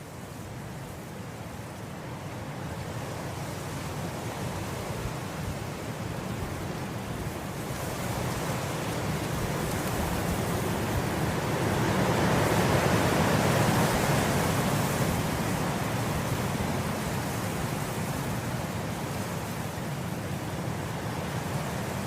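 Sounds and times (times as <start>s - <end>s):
wind blowing through grass: 0.0s - 22.0s.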